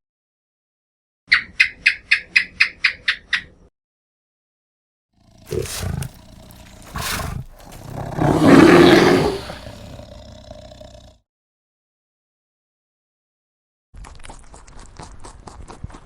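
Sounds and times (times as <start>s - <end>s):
big cat growling: 5.2s - 11.2s
big cat roaring: 5.2s - 11.2s.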